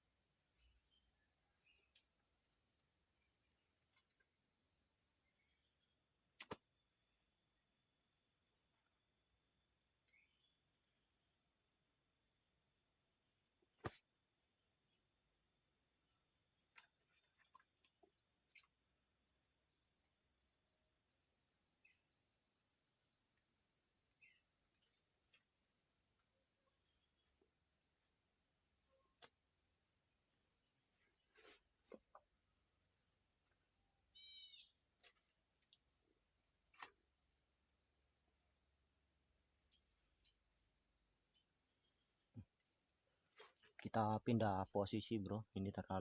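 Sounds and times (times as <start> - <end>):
high-pitched insect chorus: 0.0 - 46.0
chirps: 16.7 - 18.8, 34.2 - 34.7.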